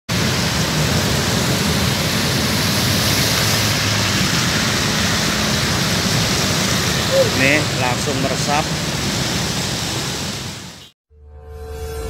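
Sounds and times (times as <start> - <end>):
heavy rain on wet road: 0.1 - 10.9
traffic driving through water: 0.1 - 10.9.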